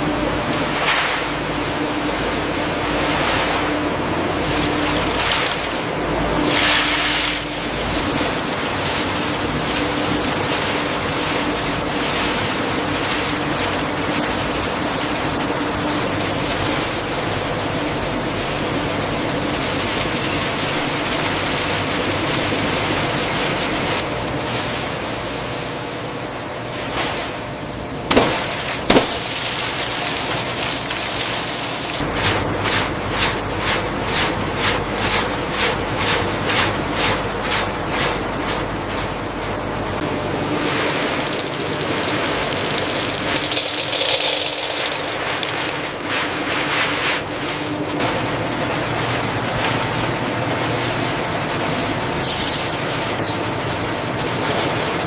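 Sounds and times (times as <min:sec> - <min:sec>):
food-processing machinery rushing: 0:00.0 - 0:55.0
quick run of clicks: 0:40.7 - 0:46.1.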